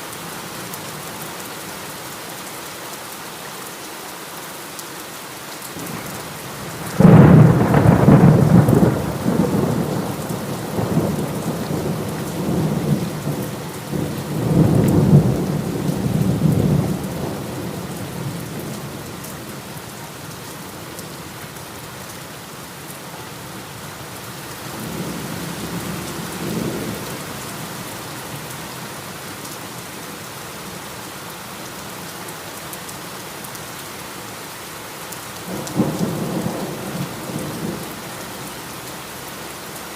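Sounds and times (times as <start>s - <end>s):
heavy rain falling: 0.0s - 39.9s
thunder clap and rumble: 6.9s - 17.6s.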